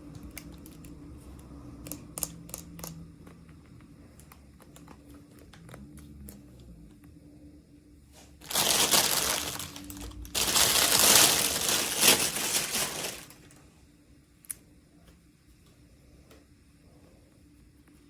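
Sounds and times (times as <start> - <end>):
plastic packaging crinkling: 8.4 - 13.6.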